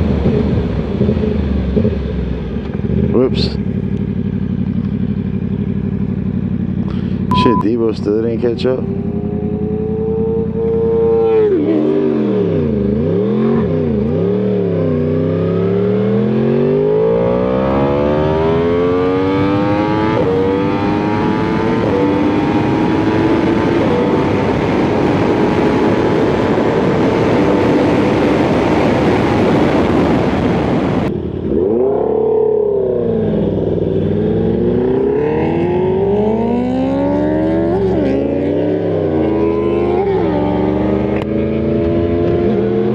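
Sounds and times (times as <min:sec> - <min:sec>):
motorcycle engine revving: 0:00.0 - 0:42.9
wind rush: 0:19.9 - 0:31.2.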